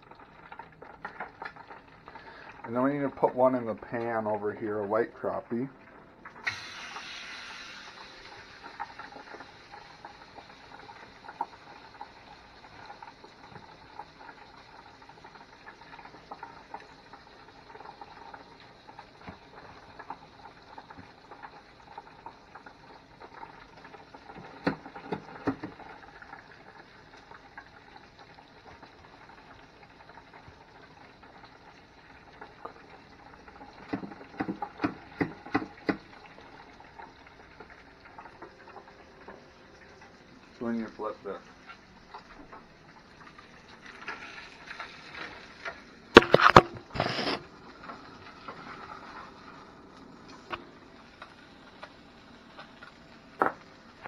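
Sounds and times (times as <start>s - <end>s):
fish sizzling in a frying pan: 0.0s - 3.3s, 6.3s - 54.0s
sharp clicks and knocks: 33.9s - 36.1s.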